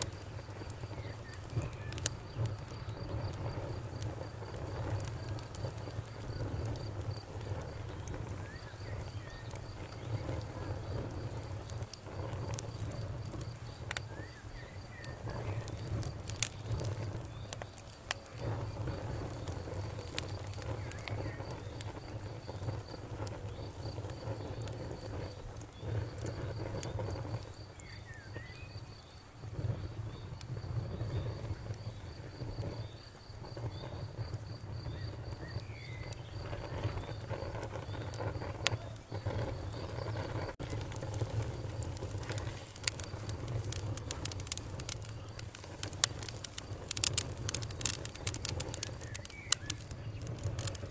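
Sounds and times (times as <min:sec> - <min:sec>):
campfire crackling: 0:00.0 - 0:50.9
cricket trilling: 0:00.0 - 0:50.9.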